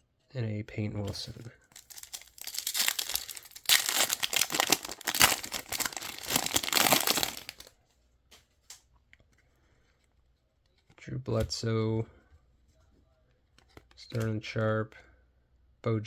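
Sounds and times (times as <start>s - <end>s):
wrapper tearing and crinkling: 1.8s - 7.7s.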